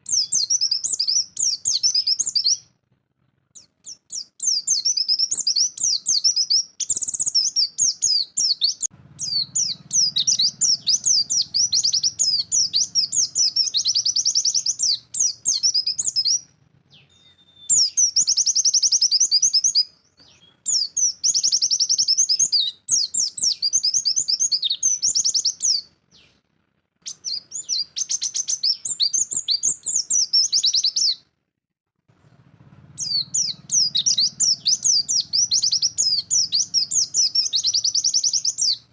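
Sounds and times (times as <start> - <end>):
bird singing rapid high chirps: 0.0 - 2.8, 3.4 - 26.4, 27.0 - 31.3, 32.9 - 38.9.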